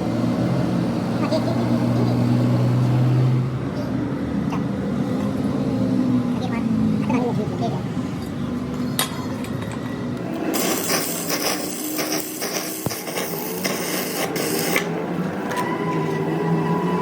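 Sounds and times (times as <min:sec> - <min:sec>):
tool scraping metal: 0:10.5 - 0:16.1.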